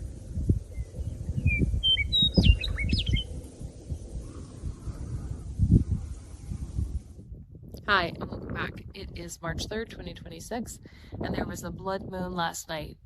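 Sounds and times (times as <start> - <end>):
low rumble: 0.0 - 12.2
bird chirping: 0.7 - 3.4.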